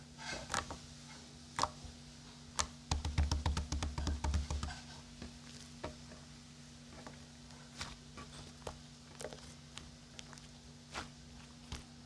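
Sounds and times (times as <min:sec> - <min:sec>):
sharp taps: 0:02.9 - 0:04.8.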